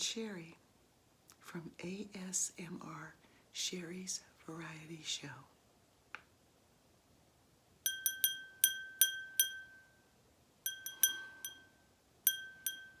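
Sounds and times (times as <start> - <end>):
small bell ringing: 7.9 - 10.1, 10.7 - 13.0.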